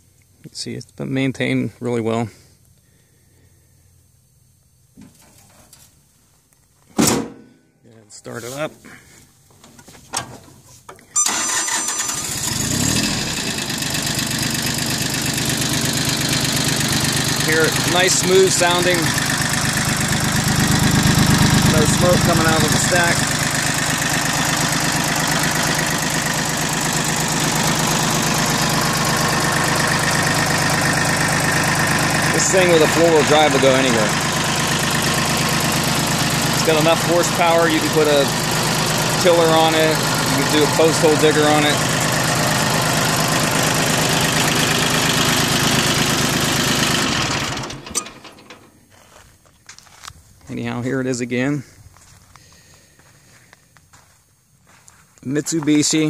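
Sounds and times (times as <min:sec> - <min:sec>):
tractor diesel engine idling: 0:11.2 - 0:49.2.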